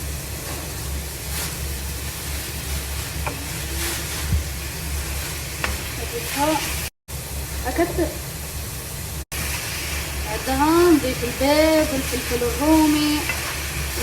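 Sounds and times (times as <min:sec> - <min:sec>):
vegetables sizzling in a frying pan: 0:00.0 - 0:14.0
utensil scraping pan: 0:13.0 - 0:14.0.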